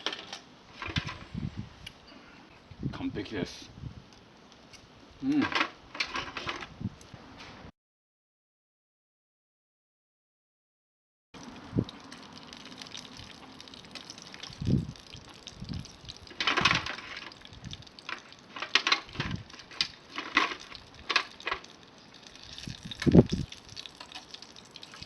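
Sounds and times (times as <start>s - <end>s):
food sizzling over campfire: 11.4s - 25.0s
fire pops and hisses: 11.9s - 25.0s.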